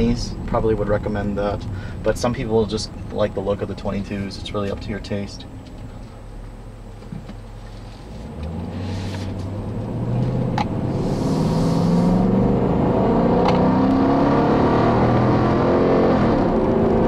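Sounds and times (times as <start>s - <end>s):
car engine accelerating hard: 8.0s - 17.0s.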